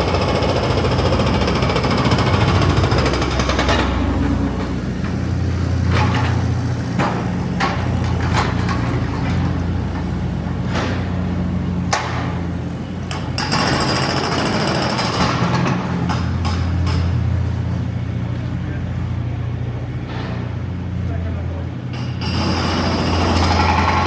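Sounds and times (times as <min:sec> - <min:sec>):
sharp knocks and clanks: 0:00.1 - 0:17.4.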